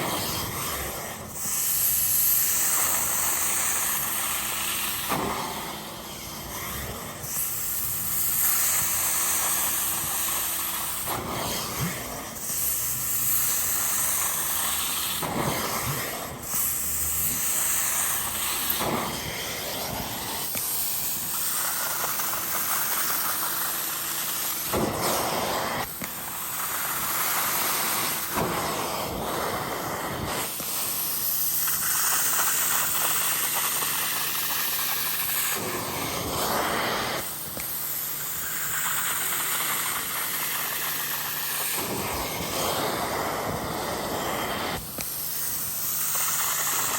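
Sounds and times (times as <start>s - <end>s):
vacuum motor whine: 0.0s - 21.4s, 39.4s - 45.9s
suction and spray hiss: 0.0s - 46.9s.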